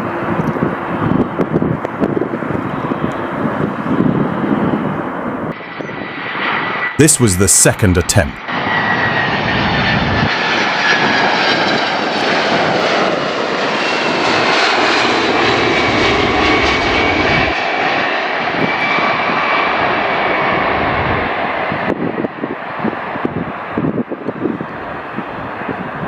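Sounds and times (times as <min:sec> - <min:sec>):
jet engines roaring: 0:08.5 - 0:22.3.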